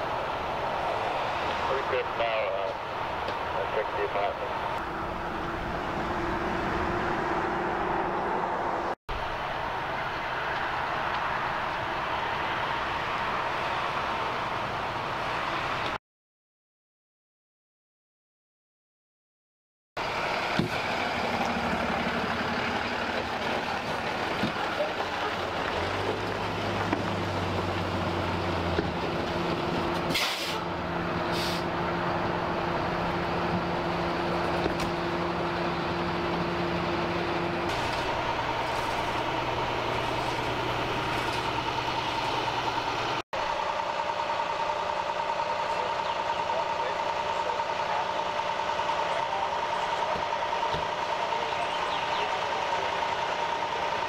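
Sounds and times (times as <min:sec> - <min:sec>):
constant high hum: 0:00.0 - 0:15.8
large vehicle engine idling: 0:20.0 - 0:54.0
air brakes hissing: 0:30.1 - 0:31.7.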